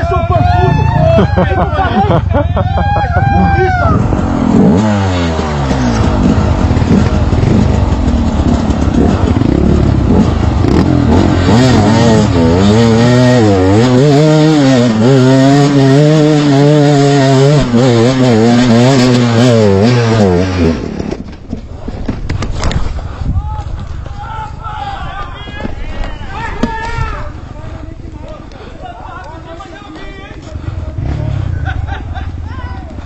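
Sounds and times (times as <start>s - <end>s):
vehicle engine revving hard: 4.0s - 21.0s.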